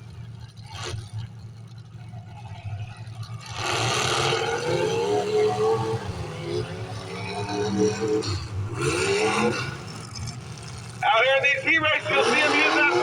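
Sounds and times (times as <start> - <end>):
car engines rumbling: 0.0 - 13.0
engine revving hard: 3.4 - 13.0.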